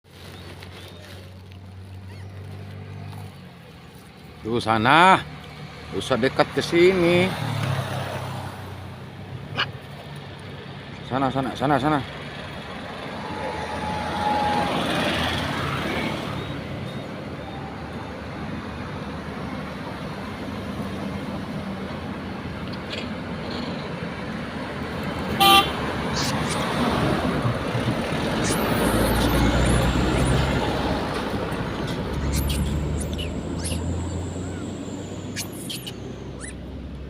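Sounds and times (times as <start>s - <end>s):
road traffic noise: 0.0s - 37.0s
low engine rumble: 9.0s - 37.0s
vehicle horn toot: 25.4s - 25.8s.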